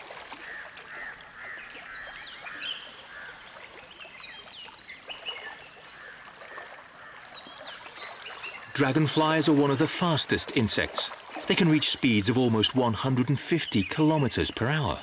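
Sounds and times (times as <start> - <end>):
birds calling: 0.4 - 15.0.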